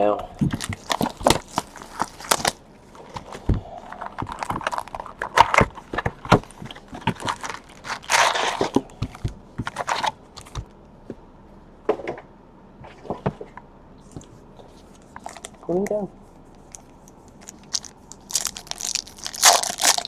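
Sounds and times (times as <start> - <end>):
plastic wrap crinkling: 0.4 - 10.6, 16.6 - 20.0
plastic wrap tearing: 0.5 - 2.6, 6.3 - 8.8, 17.4 - 20.0.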